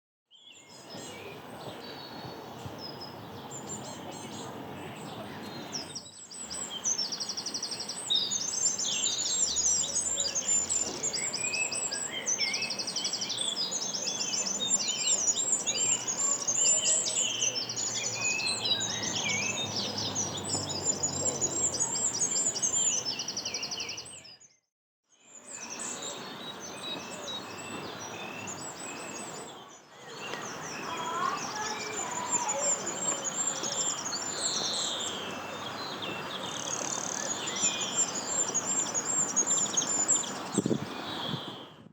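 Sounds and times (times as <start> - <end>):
small songbirds chirping and trilling: 0.3 - 41.9.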